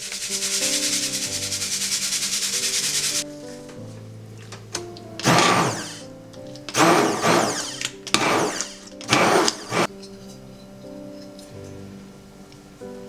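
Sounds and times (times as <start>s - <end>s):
blender motor whirring: 5.2s - 6.0s, 6.7s - 9.9s.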